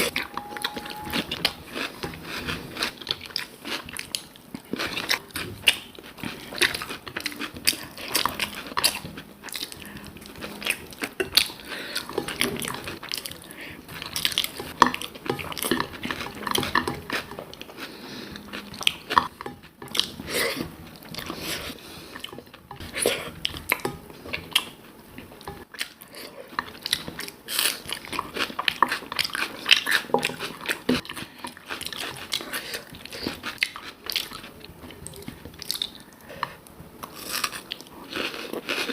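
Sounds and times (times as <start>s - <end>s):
person chewing and biting food: 0.0s - 24.8s.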